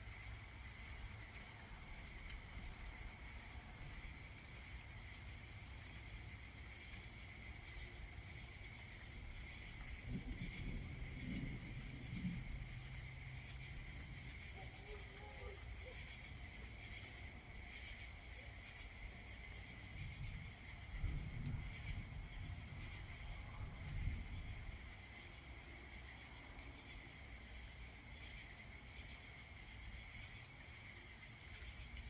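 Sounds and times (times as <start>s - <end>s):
crickets chirring: 0.0s - 32.0s.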